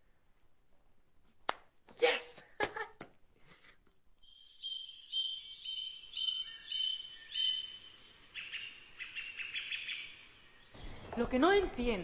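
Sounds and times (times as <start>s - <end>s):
short bird chirps: 4.2s - 11.3s
birds whistling high notes: 4.2s - 11.5s.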